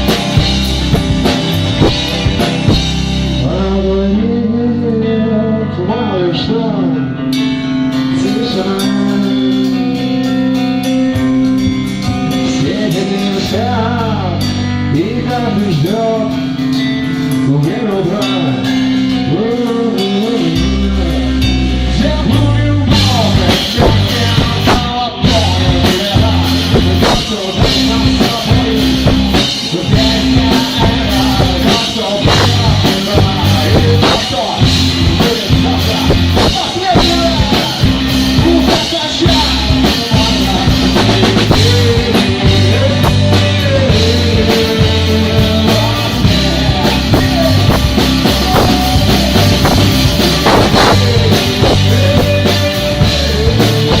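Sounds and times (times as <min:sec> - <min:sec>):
drum kit steady beat: 0:00.0 - 0:03.6, 0:08.0 - 0:54.0
guitar: 0:00.0 - 0:54.0
person singing: 0:03.3 - 0:54.0.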